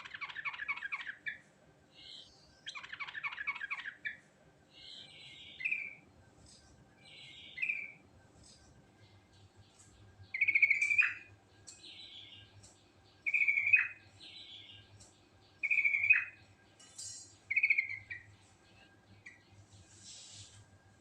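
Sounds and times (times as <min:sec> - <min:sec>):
bird singing bubbling phrases: 0:00.0 - 0:04.2, 0:08.9 - 0:16.8, 0:17.4 - 0:19.6.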